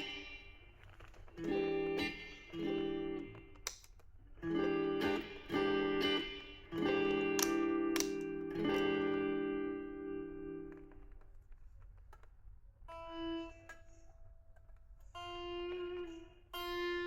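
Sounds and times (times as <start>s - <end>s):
guitar chords strummed: 0.0s - 3.8s, 4.4s - 11.2s.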